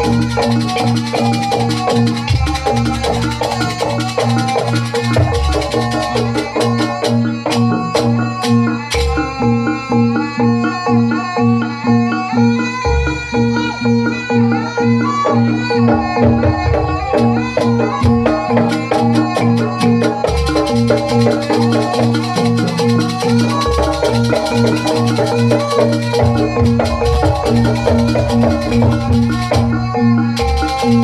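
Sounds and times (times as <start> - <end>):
drum beat: 0.0 - 9.4, 15.8 - 31.0
high sharp percussion ticks: 0.0 - 31.0.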